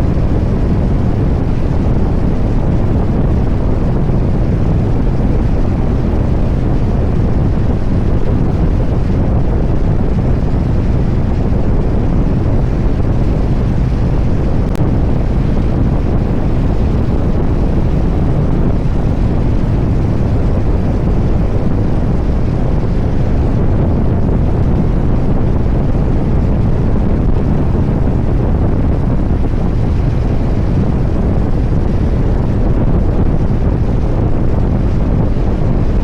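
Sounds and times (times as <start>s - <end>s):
motorcycle engine cruising: 0.0s - 36.0s
wind rushing over microphone: 0.0s - 36.0s.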